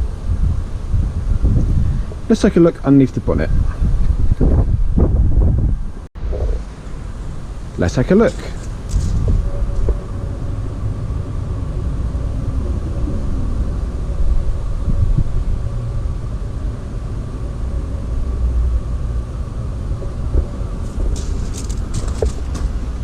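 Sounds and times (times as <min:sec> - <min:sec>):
steady low rumble: 0:03.2 - 0:23.0.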